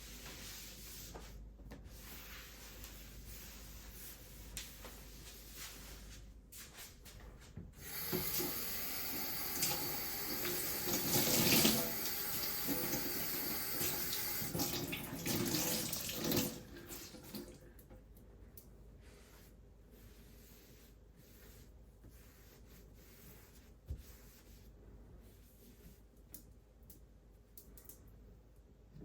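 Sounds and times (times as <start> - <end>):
tap water running into sink: 7.9 - 17.5.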